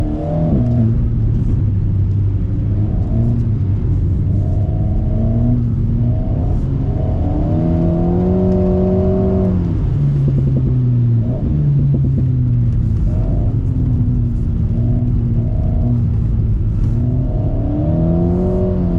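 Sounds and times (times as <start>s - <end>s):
car engine revving: 0.0s - 18.9s
exhaust crackle: 0.0s - 18.9s.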